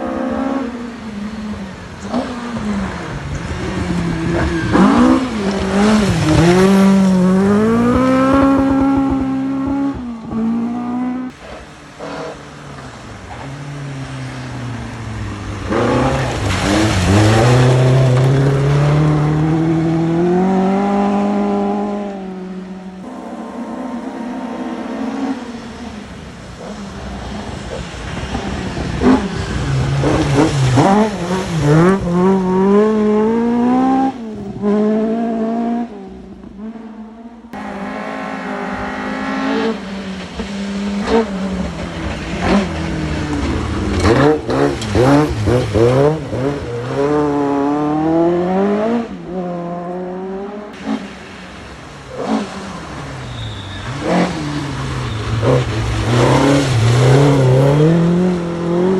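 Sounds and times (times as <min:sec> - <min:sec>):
rally cars passing at speed: 0:00.0 - 0:58.9.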